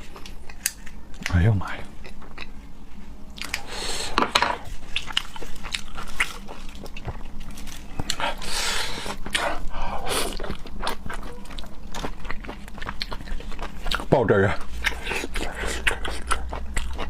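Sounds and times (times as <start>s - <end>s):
wet chewing and smacking: 2.0s - 2.6s, 4.8s - 8.2s, 9.0s - 17.0s.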